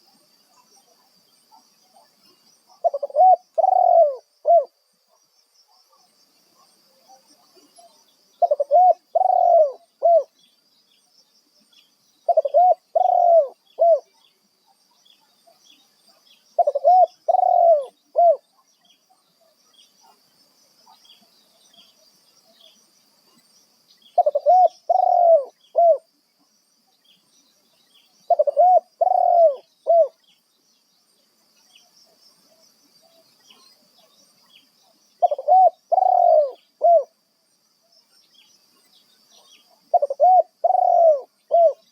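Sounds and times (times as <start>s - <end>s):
faint high-pitched hiss: 0.0s - 41.9s
dove cooing: 1.9s - 4.8s, 7.0s - 10.3s, 12.3s - 14.1s, 16.6s - 18.5s, 24.2s - 26.1s, 28.3s - 30.2s, 35.2s - 37.2s, 39.5s - 41.9s.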